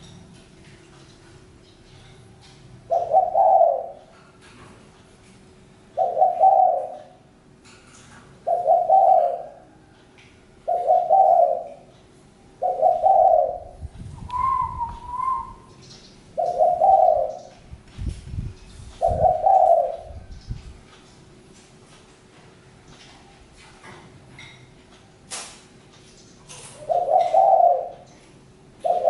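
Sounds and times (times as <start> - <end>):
dove cooing: 2.8 - 4.2, 6.0 - 7.3, 8.4 - 9.9, 10.6 - 12.0, 12.6 - 15.7, 16.3 - 17.6, 19.0 - 20.3, 26.6 - 28.2, 28.8 - 29.0
high thin bird call: 14.3 - 15.7.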